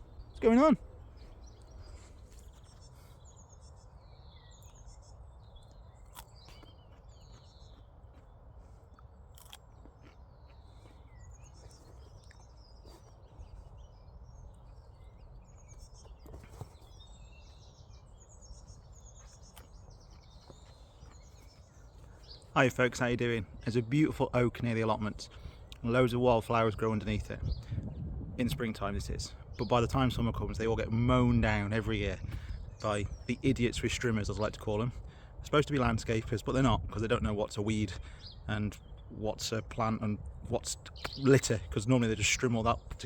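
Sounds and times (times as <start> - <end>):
small birds chirping: 0.0 - 43.0.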